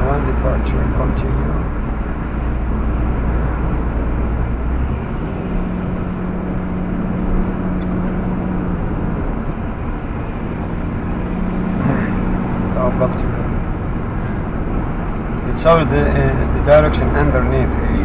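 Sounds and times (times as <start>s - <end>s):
low hum: 0.0s - 18.0s
road and tyre noise in car: 0.0s - 18.0s.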